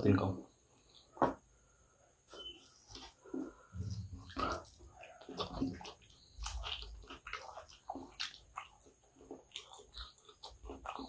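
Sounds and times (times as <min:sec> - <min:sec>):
close chewing with wet smacks: 0:02.9 - 0:11.0.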